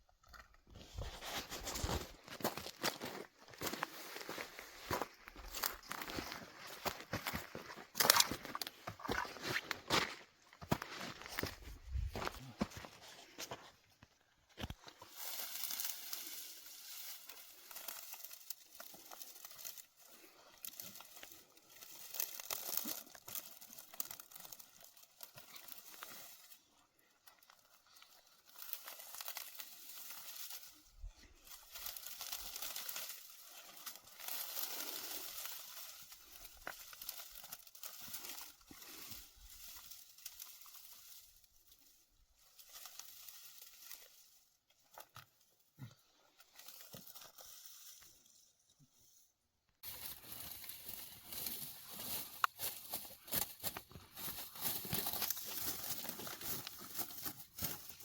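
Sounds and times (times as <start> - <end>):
dry material rustling and crinkling: 11.1 - 48.2, 49.8 - 58.0.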